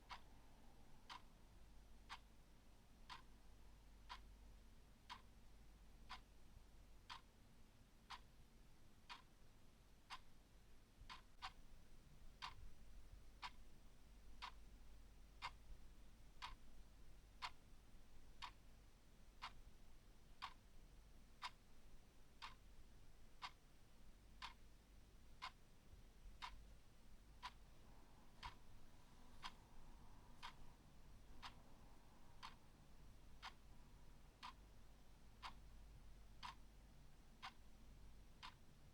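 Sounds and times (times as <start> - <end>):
clock ticking: 0.0 - 0.4, 1.0 - 1.4, 2.0 - 6.4, 7.0 - 7.4, 8.1 - 8.4, 9.1 - 9.4, 11.1 - 38.9
faint low hum: 0.0 - 38.9.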